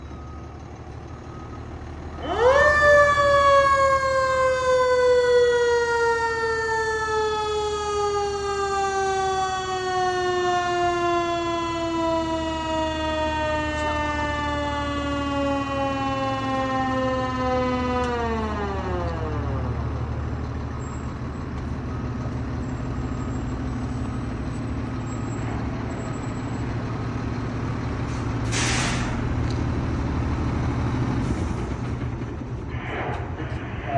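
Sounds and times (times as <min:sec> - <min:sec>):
fire engine motor rumbling: 0:00.0 - 0:33.9
mechanical siren wailing: 0:02.1 - 0:19.9.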